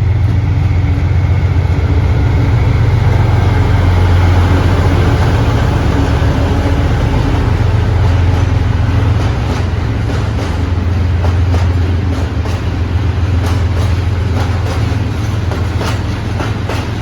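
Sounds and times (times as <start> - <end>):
diesel locomotive rumbling: 0.0 - 17.0
wheels clicking over rail joints: 4.2 - 17.0.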